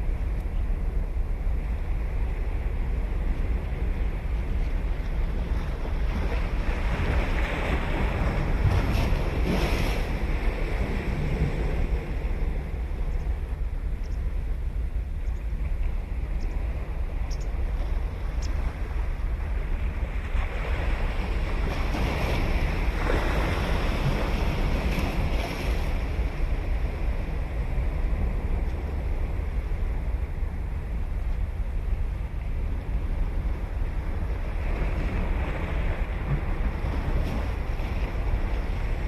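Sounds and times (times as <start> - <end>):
wind rumble on microphone: 0.0 - 39.0
ocean surf breaking: 5.3 - 13.0, 17.8 - 30.8.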